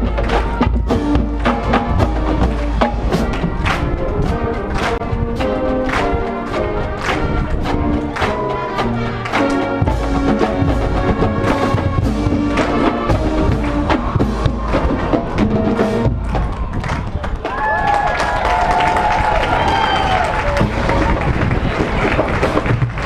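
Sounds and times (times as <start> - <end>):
drum strikes: 0.0 - 3.9, 8.1 - 16.7
sustained horn notes: 0.0 - 16.2.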